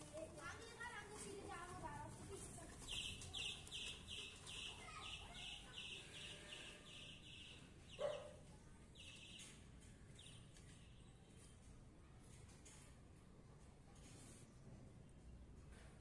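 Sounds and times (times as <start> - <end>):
faint bird chirping: 2.8 - 11.6.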